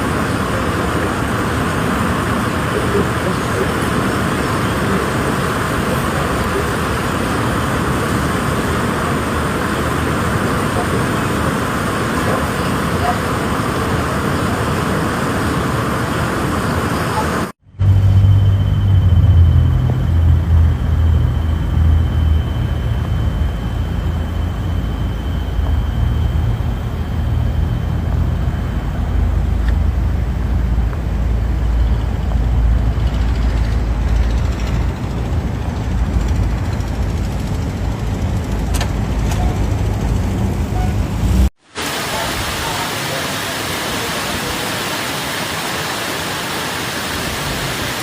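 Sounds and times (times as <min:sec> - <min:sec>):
vehicle engine droning: 0:17.6 - 0:41.6.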